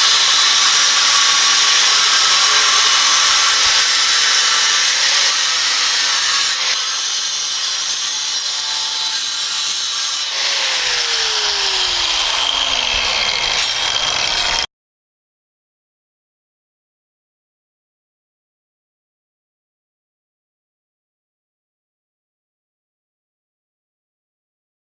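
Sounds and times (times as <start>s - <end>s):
angle grinder cutting: 0.0s - 14.7s.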